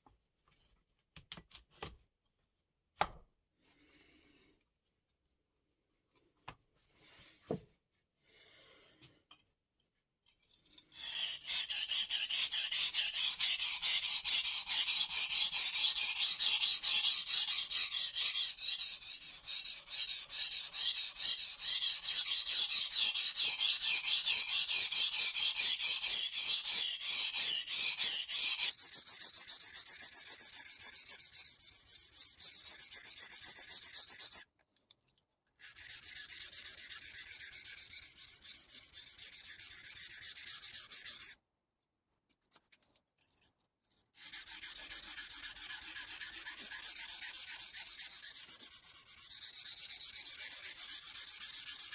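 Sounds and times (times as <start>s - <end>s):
knife blade rasping on whetstone: 10.6s - 34.4s, 35.6s - 41.4s, 44.2s - 51.9s.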